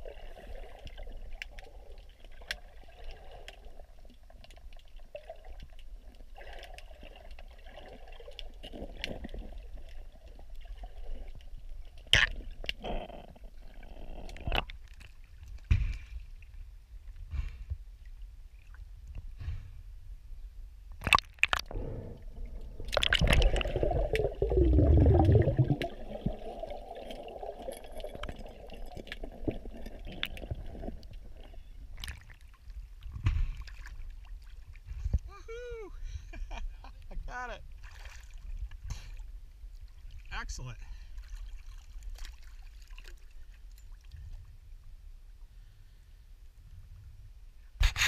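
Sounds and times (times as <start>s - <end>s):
water lapping against boat hull: 41.0s - 44.4s.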